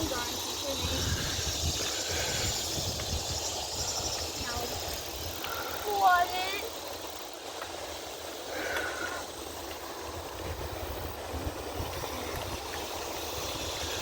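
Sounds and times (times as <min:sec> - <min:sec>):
wind buffeting microphone: 0:00.0 - 0:05.8, 0:09.4 - 0:14.0
bicycle tyres rolling: 0:00.0 - 0:14.0.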